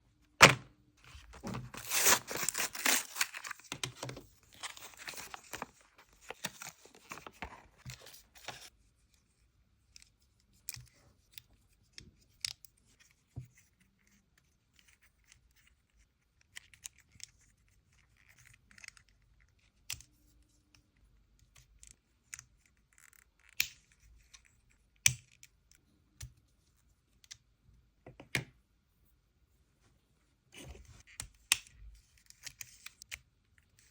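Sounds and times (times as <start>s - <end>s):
toy packaging tearing: 1.1s - 8.6s.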